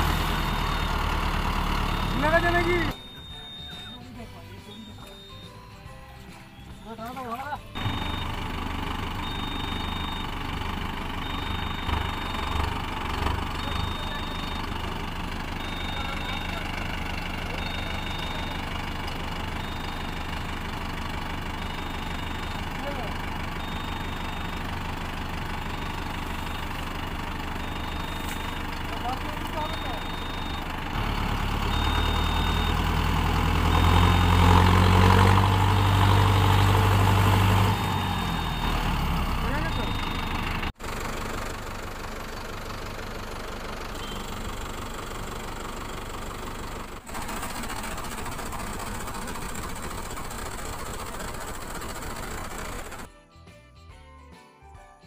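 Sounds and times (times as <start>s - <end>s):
tractor diesel engine running: 0.0s - 53.1s.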